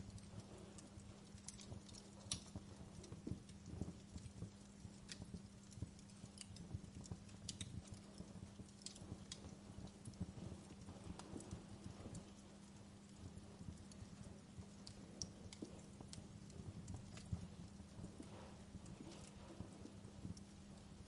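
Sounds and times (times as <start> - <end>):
fire crackling: 0.0 - 21.0.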